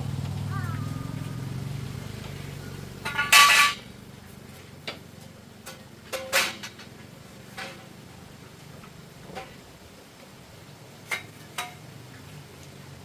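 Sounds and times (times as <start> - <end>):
metal pieces clanking: 3.0 - 3.9.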